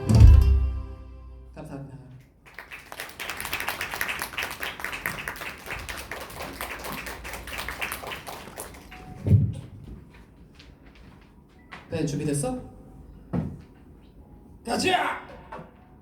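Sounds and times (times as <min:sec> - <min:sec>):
audience applauding: 0:02.4 - 0:09.3.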